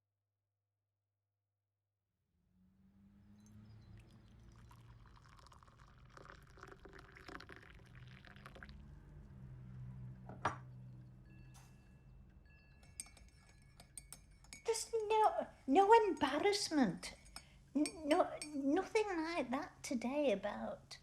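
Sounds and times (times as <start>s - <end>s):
liquid pouring: 3.8s - 8.9s
china clinking: 10.4s - 18.6s.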